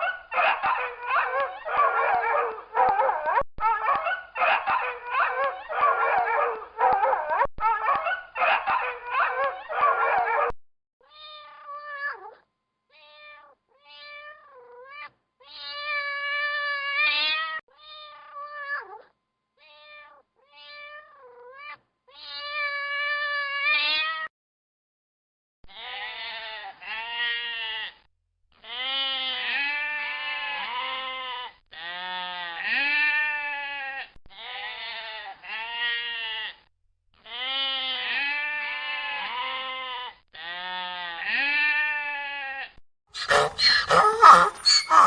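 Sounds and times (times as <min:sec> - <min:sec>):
cat meowing: 0:11.1 - 0:16.3, 0:17.0 - 0:24.3, 0:43.2 - 0:45.0
bleating: 0:13.1 - 0:18.8, 0:22.2 - 0:24.3, 0:25.7 - 0:28.0, 0:28.6 - 0:36.6, 0:37.2 - 0:45.0.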